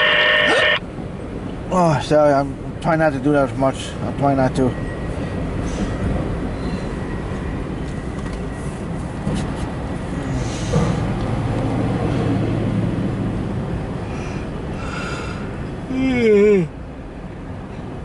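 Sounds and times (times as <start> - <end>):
low engine drone: 0.0 - 1.6
train wheels rumbling on rail: 0.9 - 15.9
freight train clanks: 10.6 - 12.6.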